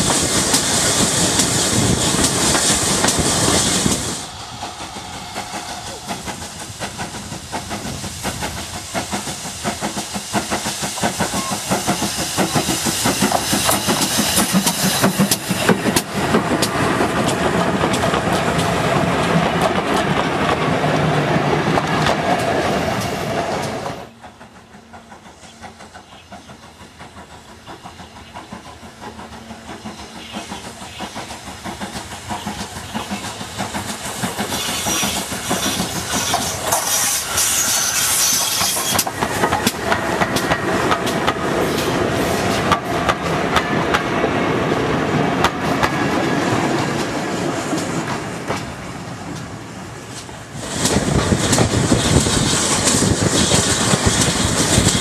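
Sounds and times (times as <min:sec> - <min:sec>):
steam locomotive approaching: 0:00.0 - 0:55.0
train wheels clattering over rail joints: 0:00.0 - 0:55.0.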